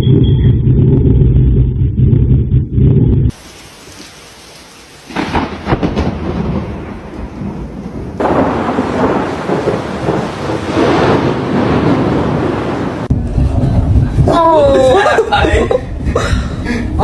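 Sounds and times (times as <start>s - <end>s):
rain: 3.3s - 17.0s
thunder clap and rumble: 5.1s - 17.0s.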